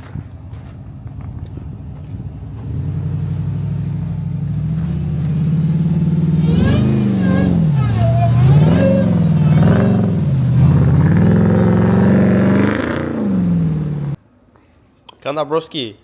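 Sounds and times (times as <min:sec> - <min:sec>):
truck engine revving: 0:02.4 - 0:14.2.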